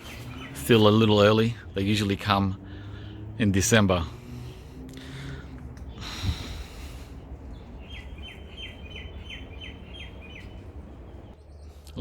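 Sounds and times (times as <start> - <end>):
steady low rumble: 0.0 - 11.9
bird calling falling notes: 7.5 - 11.3.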